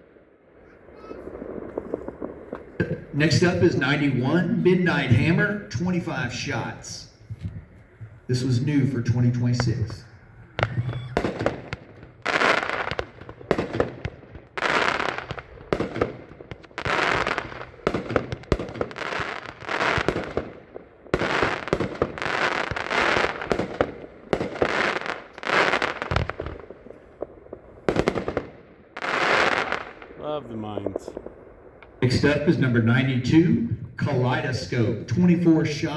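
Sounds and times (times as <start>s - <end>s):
fireworks reports and bursts: 0.0s - 35.9s.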